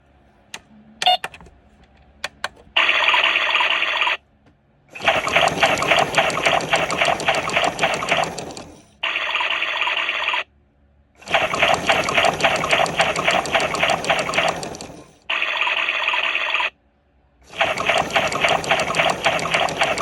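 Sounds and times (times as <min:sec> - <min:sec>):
water rushing into washing machine: 0:05.0 - 0:08.8, 0:11.2 - 0:15.1, 0:17.5 - 0:20.0.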